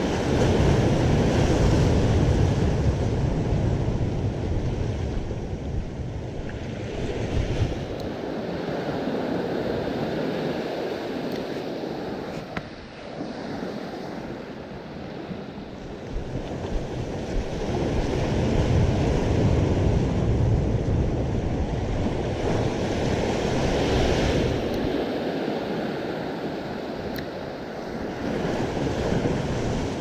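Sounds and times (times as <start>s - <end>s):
ocean surf breaking: 0.0s - 30.0s
wind buffeting microphone: 0.0s - 30.0s.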